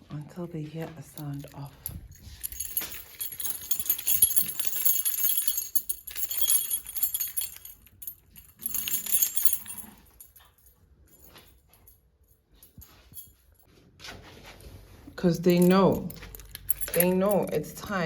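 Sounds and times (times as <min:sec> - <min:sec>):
small metal pieces jingling: 0:01.2 - 0:11.5, 0:12.6 - 0:13.4, 0:15.5 - 0:17.8.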